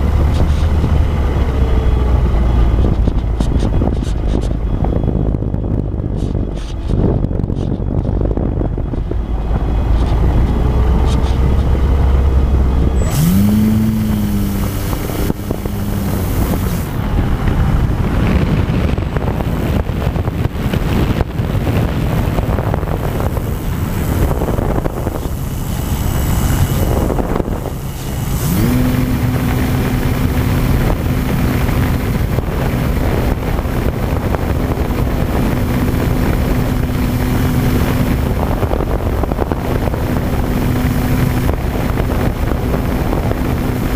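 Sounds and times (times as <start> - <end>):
wind rushing over camera: 0.0 - 43.9
model plane electric motor: 12.8 - 17.6, 19.3 - 43.9.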